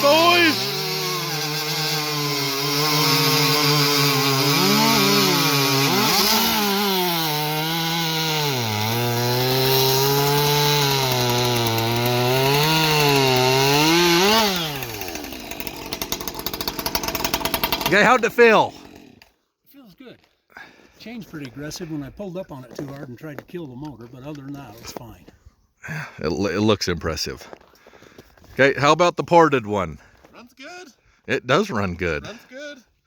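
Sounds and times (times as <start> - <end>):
chainsaws cutting wood: 0.0 - 19.4.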